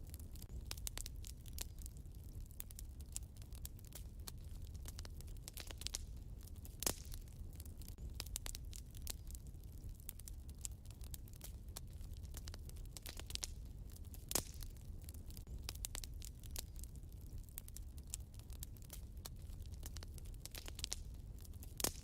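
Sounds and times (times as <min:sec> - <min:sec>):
low fire rumble: 0:00.0 - 0:22.0
wood fire crackling: 0:00.0 - 0:22.0.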